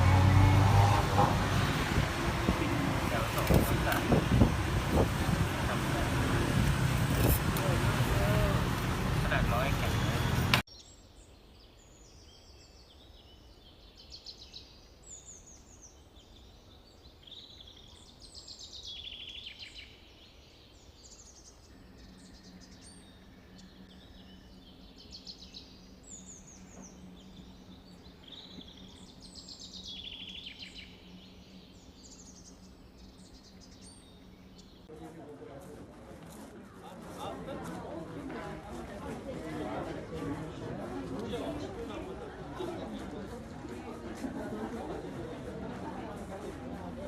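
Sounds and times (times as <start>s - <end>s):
songbirds singing: 0.0s - 34.9s.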